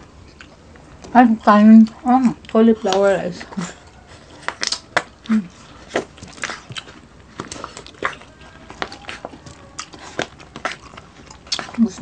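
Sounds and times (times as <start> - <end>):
chewing and crunching food: 0.0 - 12.0
wet mouth smacks: 4.4 - 5.1.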